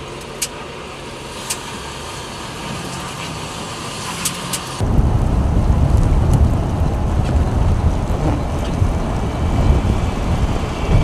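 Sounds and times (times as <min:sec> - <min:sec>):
vehicle road noise: 0:00.0 - 0:11.0
wind rumble on microphone: 0:04.7 - 0:11.0.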